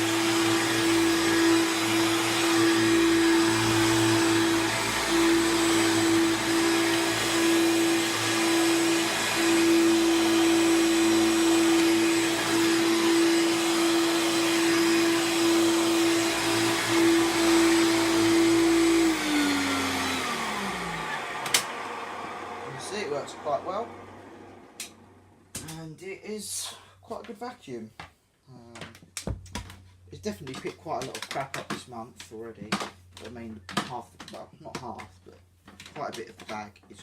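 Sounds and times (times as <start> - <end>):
vacuum cleaner running: 0.0 - 25.4.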